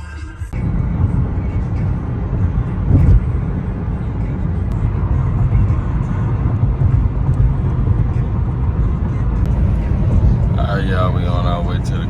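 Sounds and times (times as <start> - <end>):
traffic rumble: 0.5 - 12.0
loud bump: 2.9 - 3.3.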